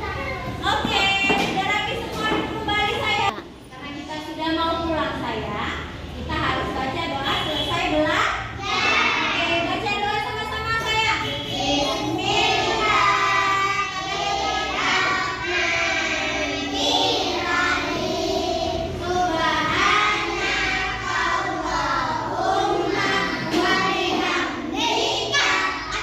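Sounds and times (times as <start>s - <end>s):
children singing: 8.6s - 9.7s, 11.4s - 26.0s.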